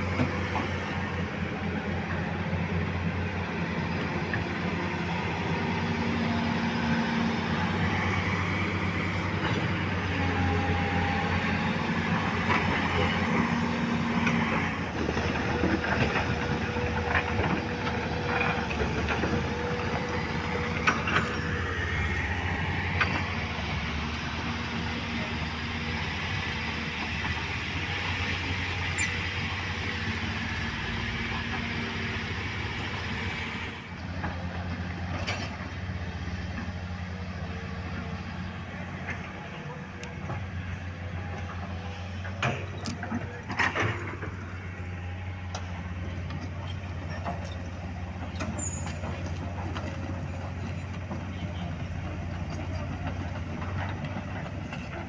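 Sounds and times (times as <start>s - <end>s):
heavy diesel engines running: 0.0s - 55.0s.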